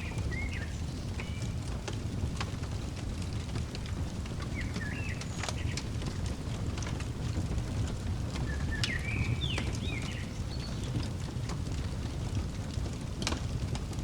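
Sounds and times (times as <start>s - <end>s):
bird chirping: 0.0s - 1.6s, 4.4s - 6.4s, 8.4s - 11.0s
wood fire crackling: 0.0s - 14.0s.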